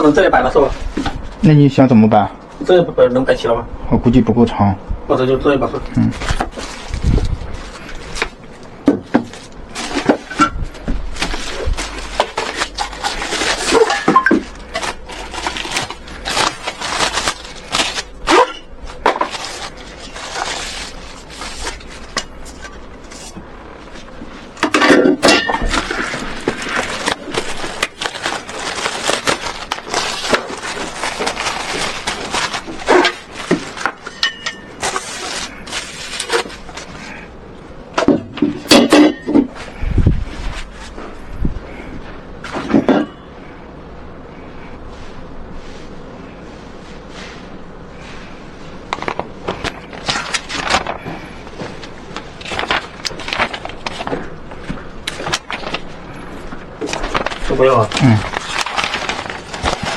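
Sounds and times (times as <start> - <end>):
rustling: 5.9 - 37.4, 44.3 - 59.9.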